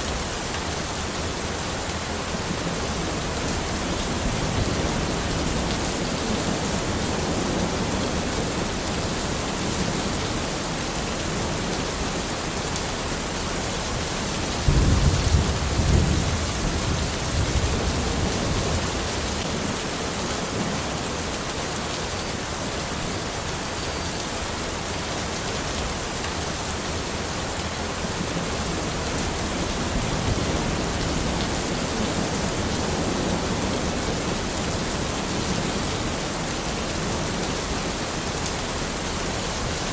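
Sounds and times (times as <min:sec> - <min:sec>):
rain on forest: 0:00.0 - 0:39.9
thunder rumble: 0:14.6 - 0:18.8.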